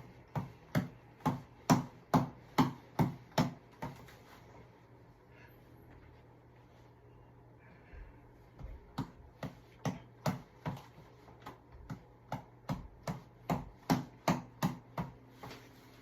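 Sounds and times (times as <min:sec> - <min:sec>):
reflex ball being punched: 0:00.0 - 0:04.2, 0:08.6 - 0:15.6.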